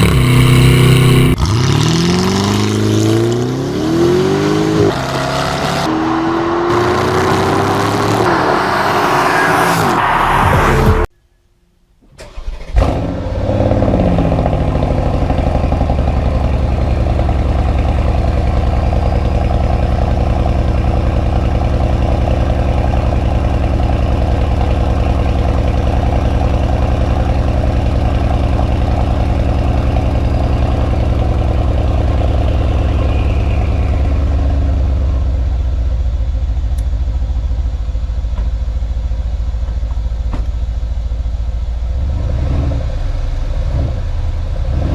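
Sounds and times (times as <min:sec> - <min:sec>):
car engine starting and idling: 0:12.0 - 0:44.9.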